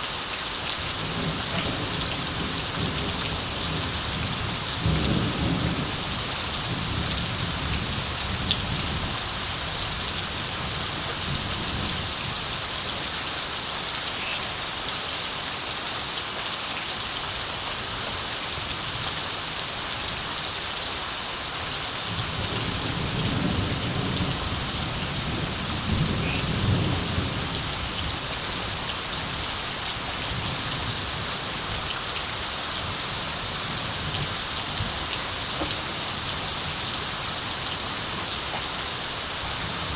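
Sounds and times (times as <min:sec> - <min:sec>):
steady rain hiss: 0:00.0 - 0:39.9
distant thunder rumbling: 0:22.6 - 0:28.2.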